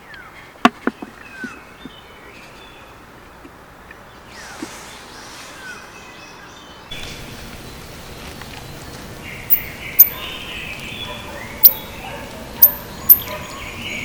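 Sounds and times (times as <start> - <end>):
rain falling on forest: 6.9 - 9.9
high-pitched bird chirps: 9.5 - 10.4, 11.0 - 12.0, 12.6 - 14.0.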